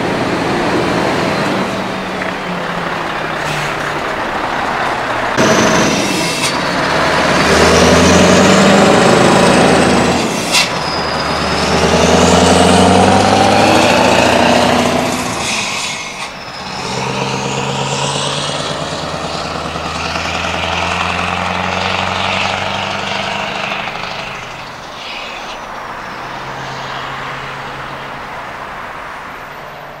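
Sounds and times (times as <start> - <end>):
truck engine accelerating through gears: 0.0 - 30.0
sharp air hiss: 10.2 - 10.8.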